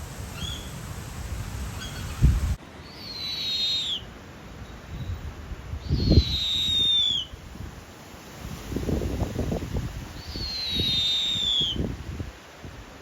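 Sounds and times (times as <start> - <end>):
bird whistle falling in pitch: 2.9 - 4.0, 5.9 - 7.3, 10.3 - 11.8.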